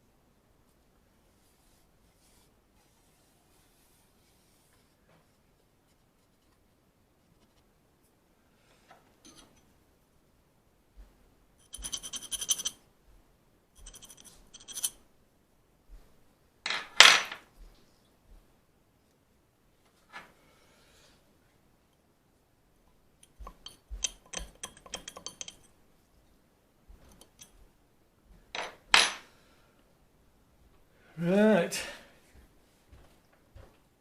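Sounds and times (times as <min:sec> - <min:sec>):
light clicks of metal parts: 0:08.9 - 0:09.7, 0:22.9 - 0:25.8, 0:27.0 - 0:27.6
metal clatter: 0:11.6 - 0:12.8, 0:23.3 - 0:25.7
ringing metallic jingles: 0:11.6 - 0:12.8.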